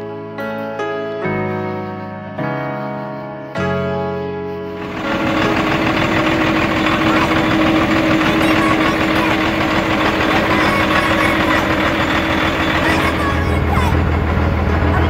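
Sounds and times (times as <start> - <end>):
piano music: 0.0 - 15.0
diesel engine idling: 4.7 - 15.0.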